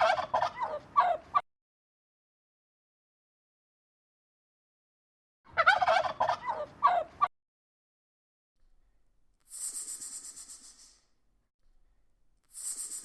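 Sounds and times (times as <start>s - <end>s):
turkey gobbling: 0.0s - 1.2s, 5.5s - 7.3s
high fluttering hiss: 9.5s - 11.1s, 12.5s - 13.0s.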